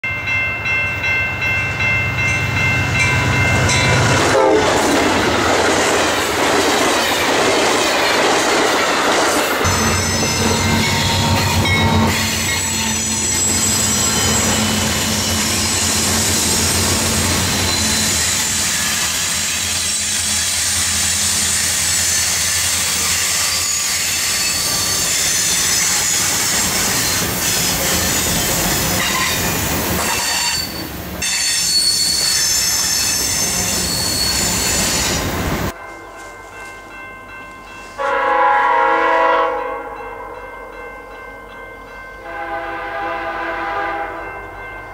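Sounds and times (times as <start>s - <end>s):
diesel locomotive engines running: 2.8s - 31.3s
diesel locomotive horn: 3.8s - 4.9s, 30.0s - 31.3s, 38.0s - 40.0s, 42.2s - 44.4s
wheels squealing on curve: 12.0s - 35.3s.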